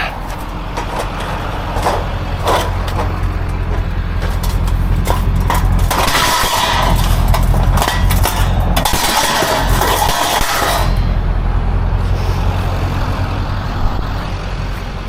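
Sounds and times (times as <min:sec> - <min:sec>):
scrap steel knocks and clanks: 0:00.0 - 0:11.5
low engine rumble: 0:00.0 - 0:15.0.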